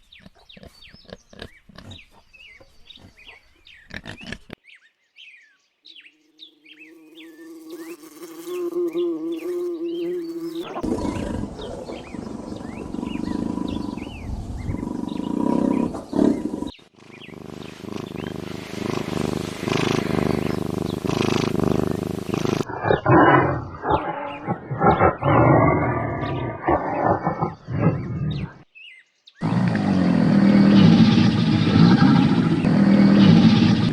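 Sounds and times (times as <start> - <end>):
big cat roaring and growling: 10.6 - 28.6, 29.4 - 33.9.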